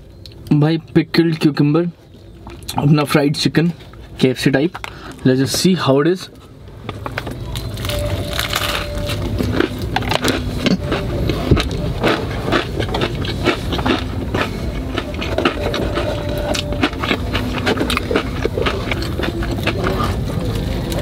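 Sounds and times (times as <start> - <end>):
steady low rumble: 6.3 - 21.0
crunchy chewing: 6.4 - 21.0.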